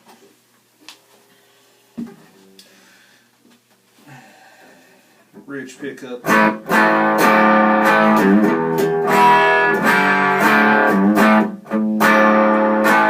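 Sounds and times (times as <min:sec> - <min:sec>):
electric guitar strummed chords: 0:06.2 - 0:13.0.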